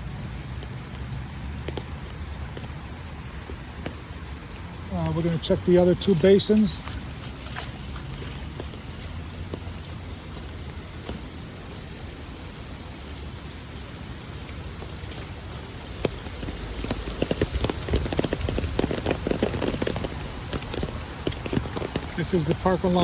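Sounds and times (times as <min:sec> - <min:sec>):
close patter of raindrops: 0:00.0 - 0:23.0
heavy rain pouring: 0:00.0 - 0:23.0.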